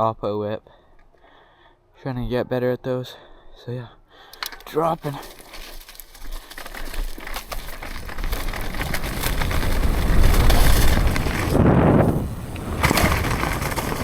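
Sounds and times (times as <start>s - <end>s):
bike tyres crunching on dirt: 4.7s - 14.0s
wind rushing over microphone: 7.9s - 14.0s.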